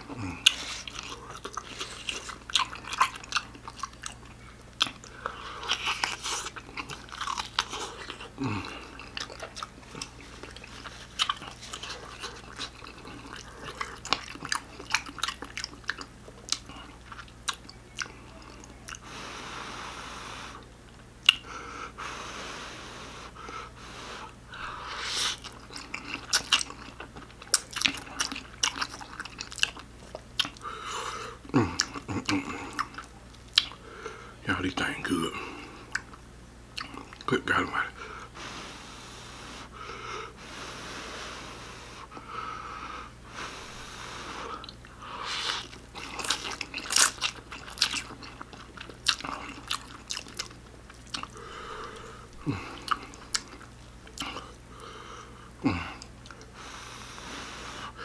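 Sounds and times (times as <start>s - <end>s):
person chewing noodles: 0.0s - 34.4s, 35.1s - 37.3s, 37.9s - 58.0s
wet smacks and clicks: 32.8s - 33.8s.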